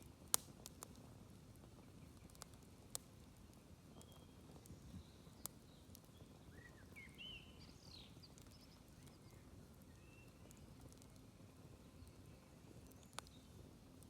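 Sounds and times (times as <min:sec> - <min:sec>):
fire pops: 0:00.0 - 0:06.2, 0:10.4 - 0:14.0
campfire crackling: 0:00.0 - 0:14.0
low fire rumble: 0:00.0 - 0:14.0.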